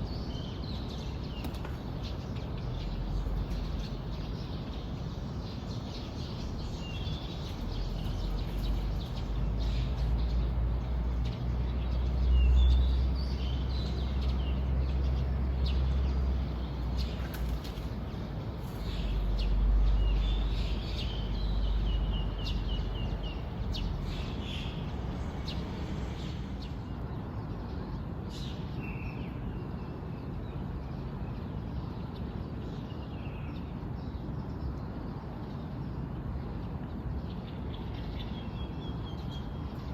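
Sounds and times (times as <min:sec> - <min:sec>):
small birds chirping: 0:00.0 - 0:29.2.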